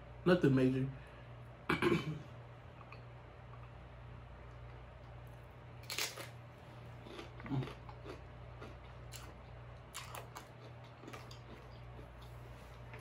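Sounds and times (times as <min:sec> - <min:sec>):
steady low hum: 0:00.0 - 0:13.0
crunching crisp shell: 0:05.0 - 0:13.0.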